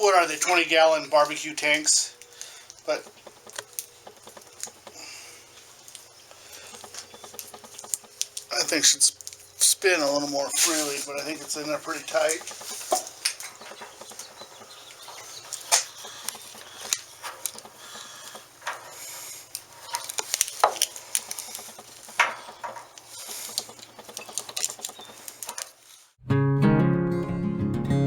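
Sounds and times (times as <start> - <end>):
metal fitting clicking and scraping: 15.5 - 25.7
acoustic guitar music: 26.2 - 28.0.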